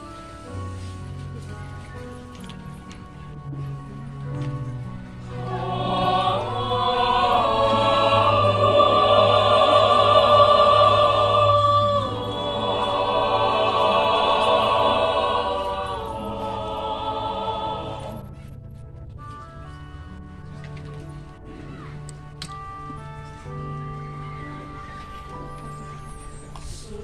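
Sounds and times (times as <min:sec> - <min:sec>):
choir singing held chords: 0:04.8 - 0:18.6.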